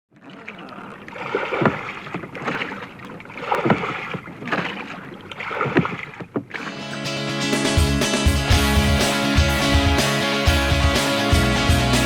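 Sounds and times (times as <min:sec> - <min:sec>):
oars splashing in water: 0:00.1 - 0:07.4.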